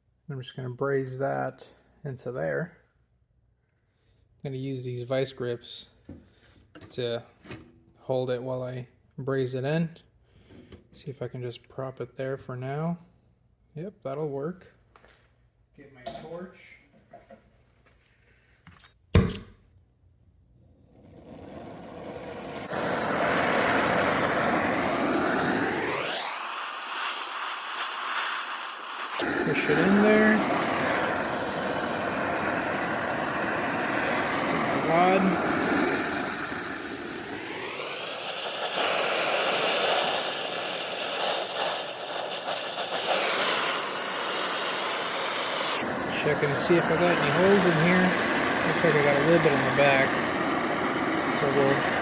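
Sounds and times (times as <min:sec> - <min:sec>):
torch flame rushing: 0:20.7 - 0:52.0
torch ignition click: 0:21.4 - 0:52.0.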